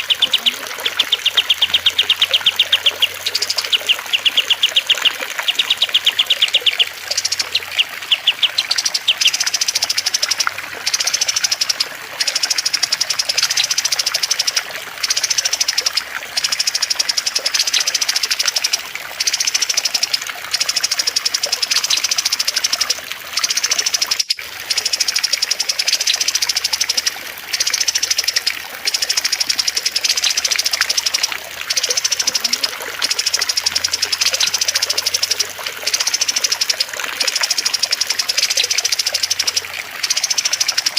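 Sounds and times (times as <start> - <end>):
cage bird trilling: 0.0 - 11.7
trickling water: 0.0 - 40.9.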